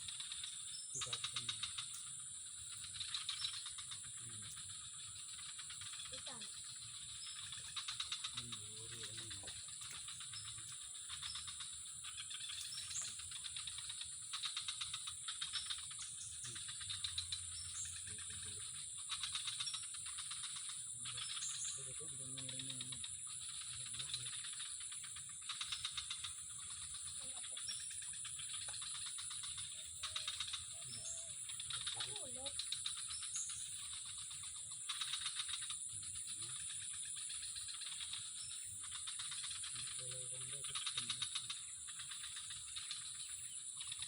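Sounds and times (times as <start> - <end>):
rapid rattling chirps: 0.0 - 44.0
faint low voices: 8.2 - 9.8, 21.0 - 24.5, 30.0 - 32.7, 39.8 - 41.6.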